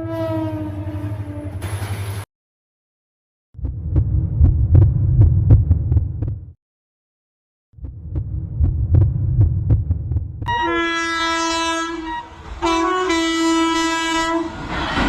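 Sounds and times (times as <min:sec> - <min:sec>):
train rumbling: 0:03.6 - 0:06.5, 0:07.8 - 0:15.0.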